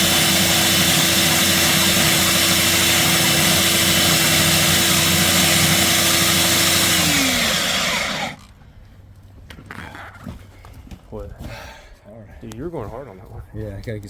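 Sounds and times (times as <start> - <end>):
core drill motor spinning down: 0.0 - 8.4.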